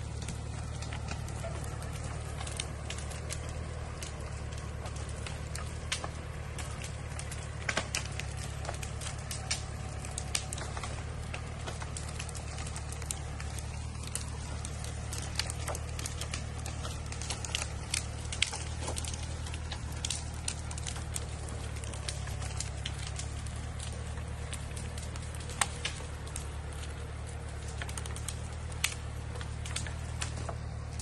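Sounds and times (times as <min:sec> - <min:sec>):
sharp clicks and cracks: 0:00.0 - 0:31.0
tractor engine droning: 0:00.0 - 0:31.0.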